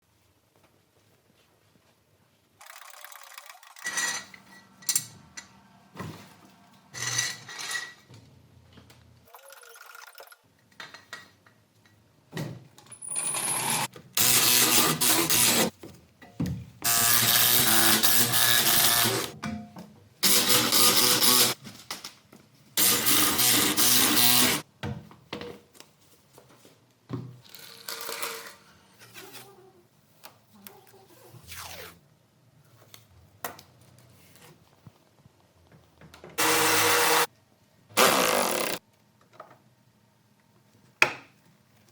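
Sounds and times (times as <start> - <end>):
power tool running: 16.9 - 19.3, 22.8 - 24.6, 36.4 - 37.3, 38.0 - 38.8.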